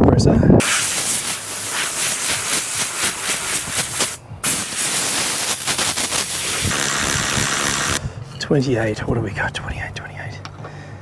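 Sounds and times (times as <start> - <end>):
compressed air hissing: 0.6 - 8.0.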